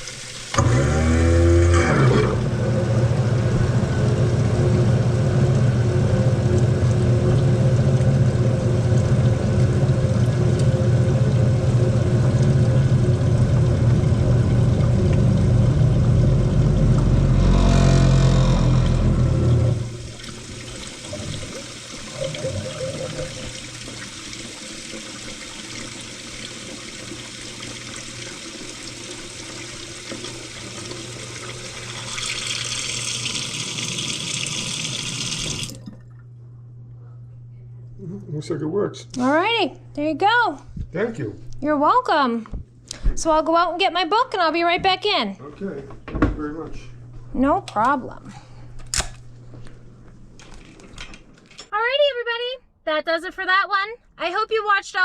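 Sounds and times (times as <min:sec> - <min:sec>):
water rushing: 0:00.0 - 0:35.9
water draining: 0:00.0 - 0:36.3
garbage disposal motor humming: 0:00.0 - 0:45.9.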